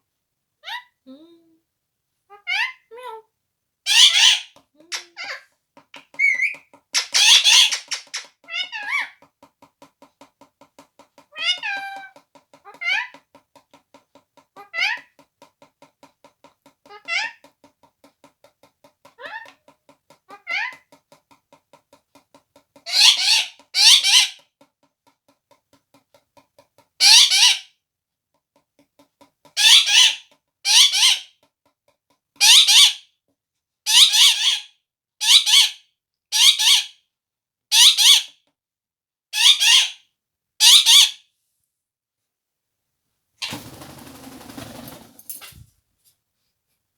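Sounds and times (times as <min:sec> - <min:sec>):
parrot screeching: 0:03.9 - 0:05.4, 0:06.2 - 0:09.2, 0:22.9 - 0:24.4, 0:27.0 - 0:27.6, 0:29.6 - 0:31.3, 0:32.4 - 0:33.0, 0:33.9 - 0:35.8, 0:36.4 - 0:36.9, 0:39.4 - 0:40.0, 0:40.6 - 0:41.2.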